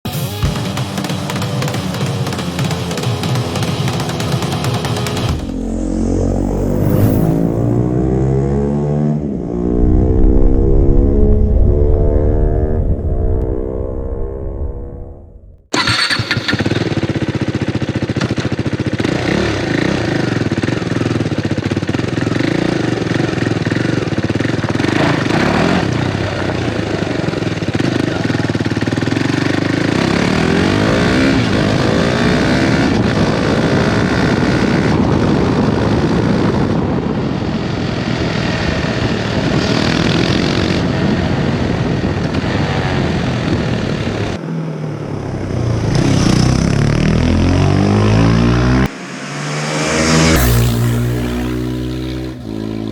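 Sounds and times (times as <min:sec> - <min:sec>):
motorcycle engine through exhaust: 0:01.0 - 0:52.9.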